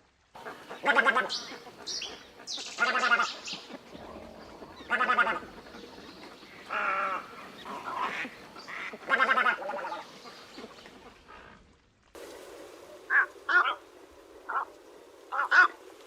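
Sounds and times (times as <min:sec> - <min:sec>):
bird calling: 0:00.4 - 0:11.6, 0:12.8 - 0:16.0.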